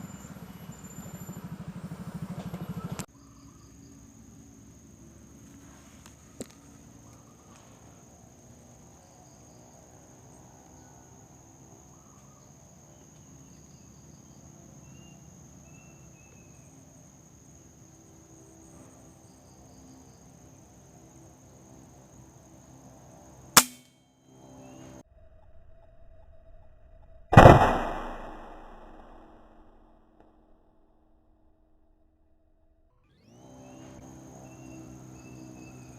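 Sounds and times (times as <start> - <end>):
faint bird chirps: 2.7 - 4.0, 11.8 - 16.8, 32.9 - 35.9
air rifle shot: 23.6 - 23.8, 27.4 - 29.8
high insect buzz: 33.2 - 35.9.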